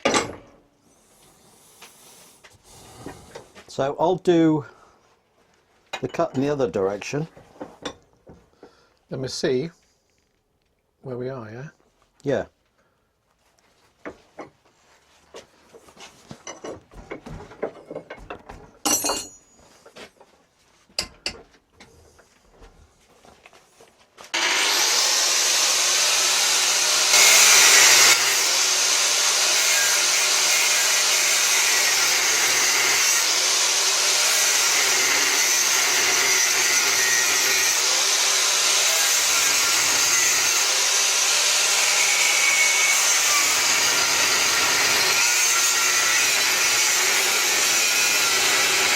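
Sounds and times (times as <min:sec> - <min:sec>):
knocks and clicks of handling: 0:16.2 - 0:19.2
angle grinder cutting steel: 0:24.3 - 0:48.9.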